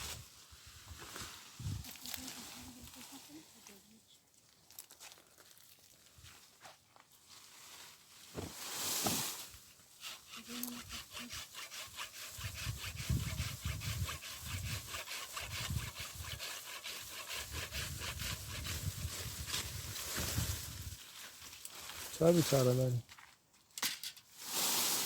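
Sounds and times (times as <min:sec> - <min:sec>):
rustle: 0:00.0 - 0:25.0
hand tool rasping: 0:10.0 - 0:19.7.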